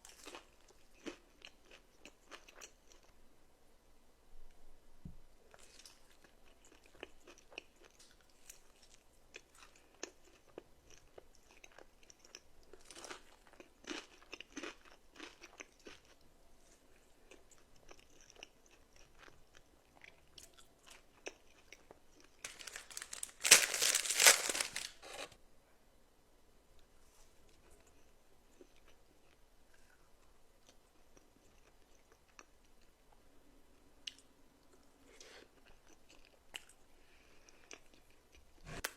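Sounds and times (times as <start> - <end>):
crunchy chewing: 0.0 - 3.1, 5.5 - 16.2.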